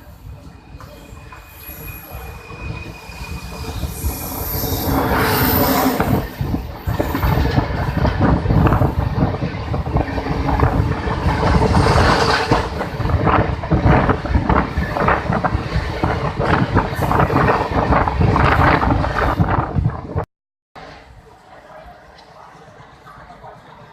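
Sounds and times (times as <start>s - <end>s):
train wheels rumbling: 0.0s - 20.2s.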